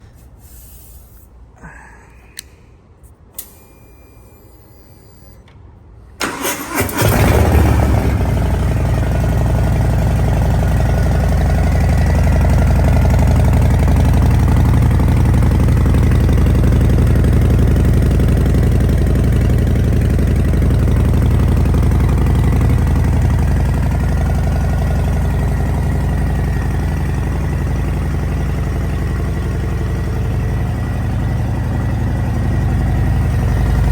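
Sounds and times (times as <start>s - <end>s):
motorcycle engine cranking: 6.2s - 8.6s
motorcycle engine idling loudly: 6.9s - 33.9s.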